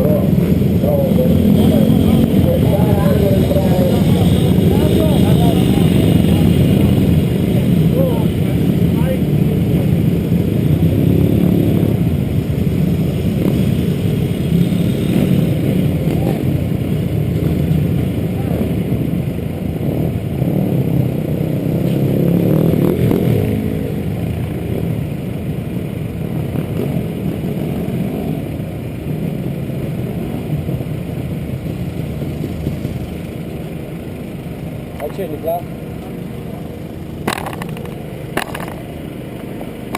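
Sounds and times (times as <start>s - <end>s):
pit bike engines running: 0.0s - 39.9s.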